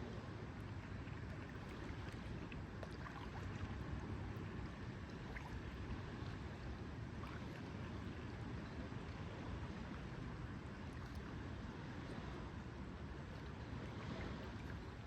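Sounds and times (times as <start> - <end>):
water lapping at shore: 0.0 - 15.0.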